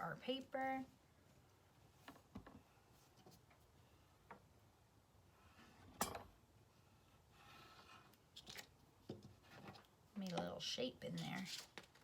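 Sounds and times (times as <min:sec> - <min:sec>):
paper rustling: 0:11.1 - 0:12.0.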